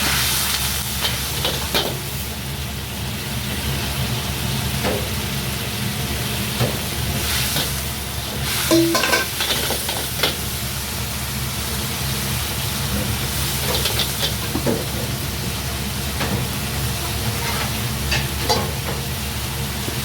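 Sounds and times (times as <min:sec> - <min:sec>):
food sizzling in a pan: 0:00.0 - 0:20.0
low kitchen rumble: 0:00.0 - 0:20.0.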